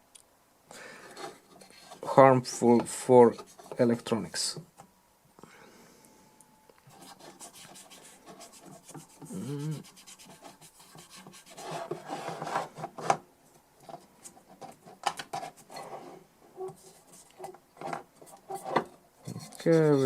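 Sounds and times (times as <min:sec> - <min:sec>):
scratchy scrubbing and rubbing: 0:06.9 - 0:13.1, 0:13.8 - 0:20.0.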